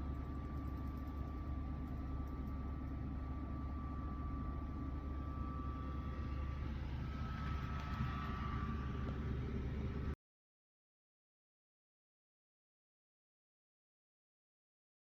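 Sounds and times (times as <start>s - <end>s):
dehumidifier humming with whine: 0.0s - 10.2s.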